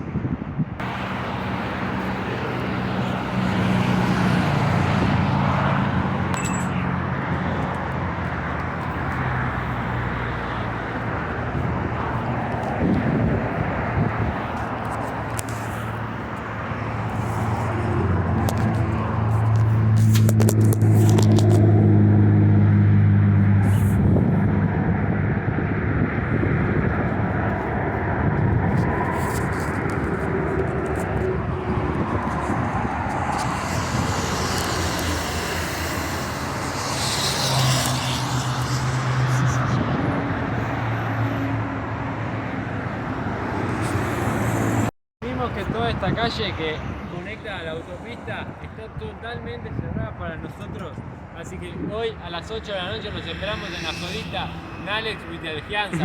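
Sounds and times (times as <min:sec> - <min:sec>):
road traffic rumble: 0:00.0 - 0:56.0
low engine hum: 0:00.8 - 0:40.6.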